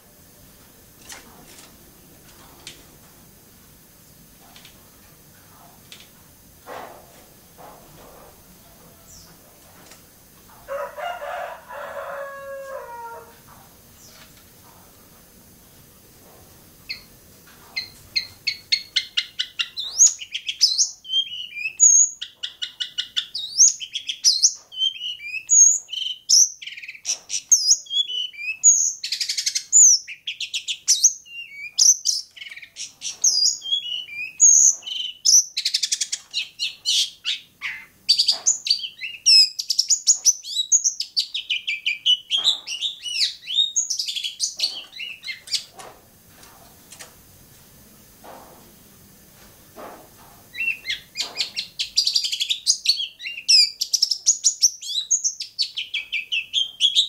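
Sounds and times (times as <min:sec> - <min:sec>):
bird singing trills and whistles: 0:17.8 - 0:45.7, 0:50.6 - 0:57.0.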